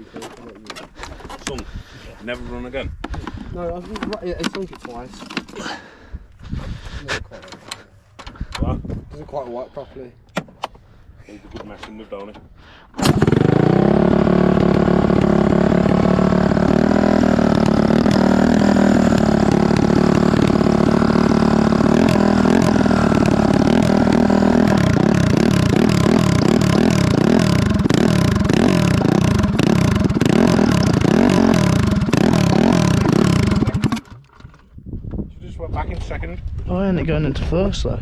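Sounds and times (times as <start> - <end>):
go-kart engine revving: 13.0 - 34.2.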